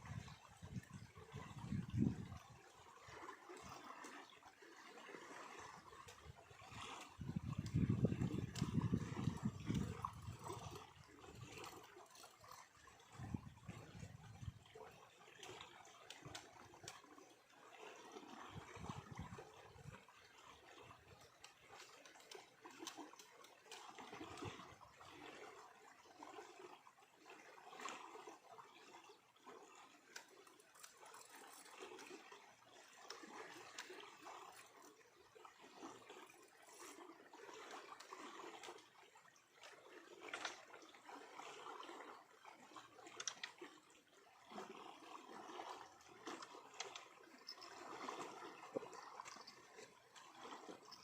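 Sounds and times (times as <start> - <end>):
water trickling and lapping: 0.0 - 51.0
small clicks: 43.2 - 43.6.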